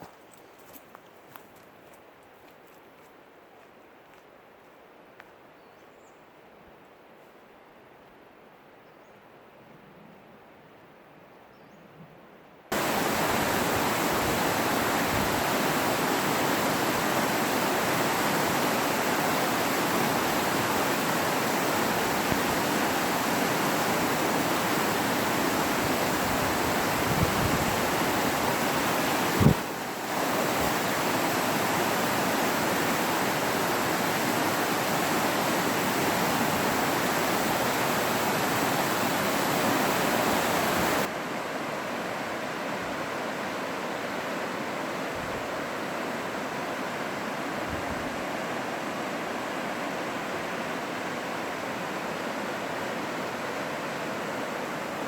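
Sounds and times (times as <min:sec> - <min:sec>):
fast-running water rushing: 0:12.7 - 0:42.5.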